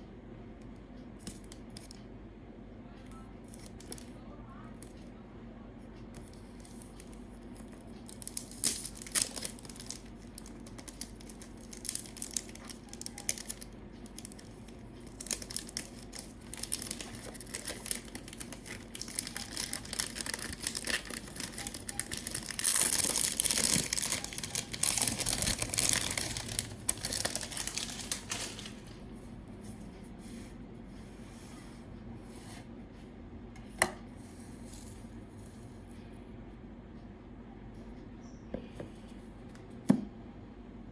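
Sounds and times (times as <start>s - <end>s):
packaging tearing and crinkling: 8.1s - 28.9s.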